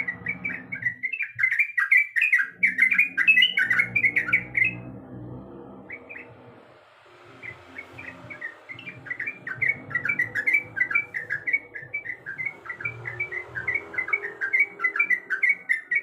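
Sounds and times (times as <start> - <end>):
bird chattering song: 0.0 - 4.8, 5.9 - 6.4, 7.2 - 16.0.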